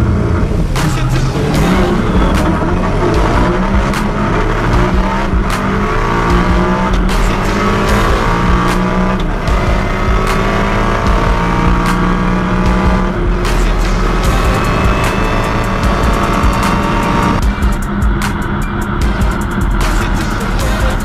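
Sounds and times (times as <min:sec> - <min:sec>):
race car engines accelerating: 0:00.0 - 0:21.0.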